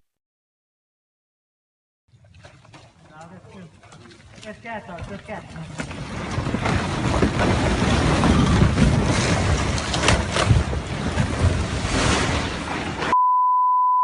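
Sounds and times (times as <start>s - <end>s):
rockslide rumbling roar: 5.8s - 13.1s
sharp rock cracks: 5.9s - 10.7s.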